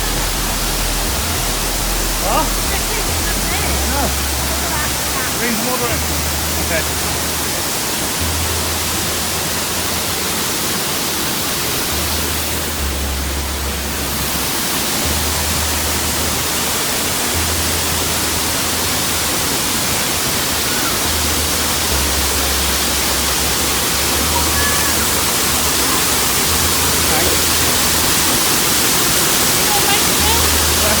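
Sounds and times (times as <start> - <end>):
low rumble: 0.0 - 7.5
waterfall rushing: 0.0 - 31.0.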